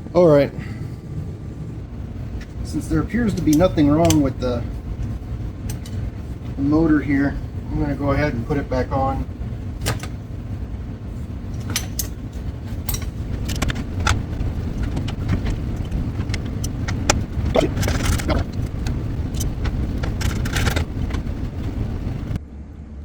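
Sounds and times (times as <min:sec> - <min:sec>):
steady low rumble: 0:00.0 - 0:23.0
metal tools clinking and rattling: 0:05.6 - 0:06.1, 0:11.5 - 0:14.2, 0:14.8 - 0:21.3.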